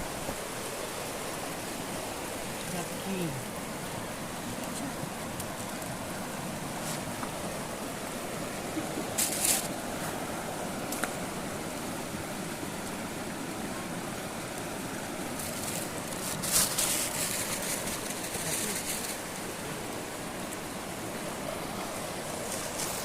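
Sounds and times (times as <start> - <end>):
river water rushing over stones: 0.0 - 23.0
hissing noises: 8.8 - 10.2.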